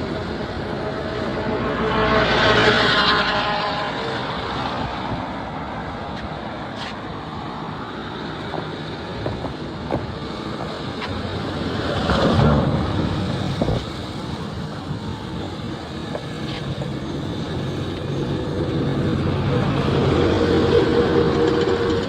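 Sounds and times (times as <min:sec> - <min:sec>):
vehicle passing: 0:00.0 - 0:06.0
road noise: 0:00.0 - 0:22.0.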